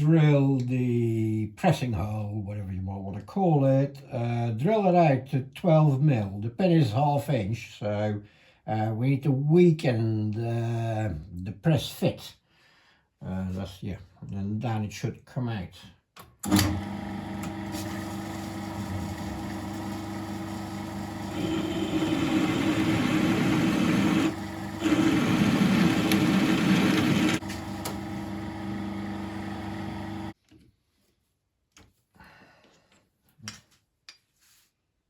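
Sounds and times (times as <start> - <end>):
metal lathe running: 16.6 - 30.3
drill bit cutting into steel: 18.3 - 30.3.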